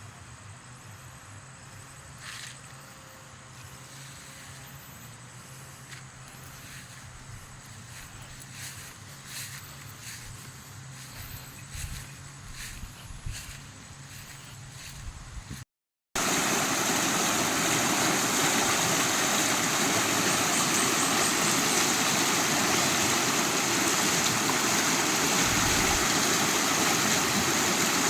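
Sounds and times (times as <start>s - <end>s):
heavy rain pouring: 16.2s - 28.0s.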